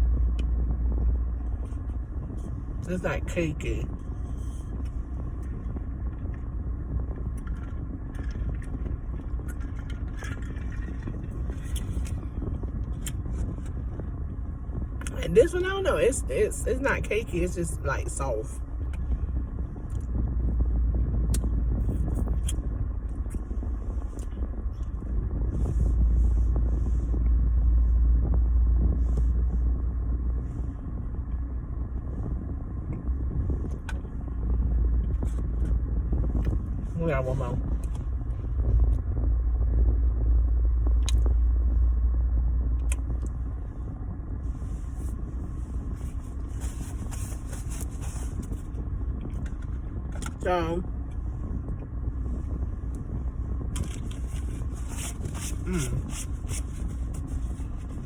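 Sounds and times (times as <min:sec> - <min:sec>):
car interior rumble: 0:00.0 - 0:58.0
crackly rustle: 0:07.1 - 0:15.0, 0:42.7 - 0:50.4, 0:51.0 - 0:58.0.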